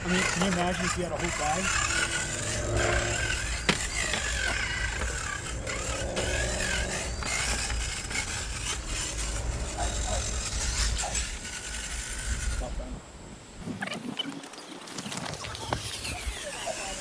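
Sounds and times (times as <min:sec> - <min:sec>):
tyres scraping on rock: 0:00.0 - 0:12.9
electric motor whine: 0:00.0 - 0:13.0.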